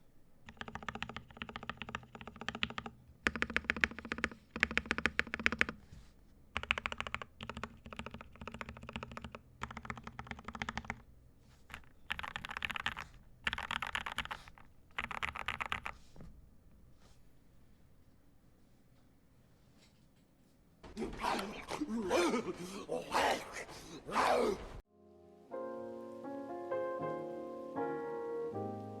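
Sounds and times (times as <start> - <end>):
mechanical keyboard typing: 0.0 - 5.9, 6.5 - 16.2.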